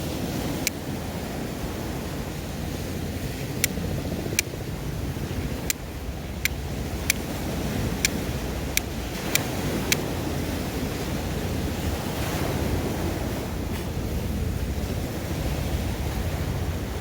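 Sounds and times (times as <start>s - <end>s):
low wind rumble: 0.0s - 17.0s
sea surf washing on shore: 0.0s - 17.0s
sharp clicks: 5.6s - 10.1s.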